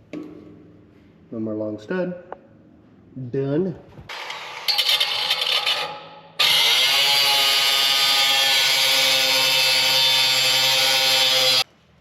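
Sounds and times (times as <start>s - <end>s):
power tool whining: 4.1s - 11.6s.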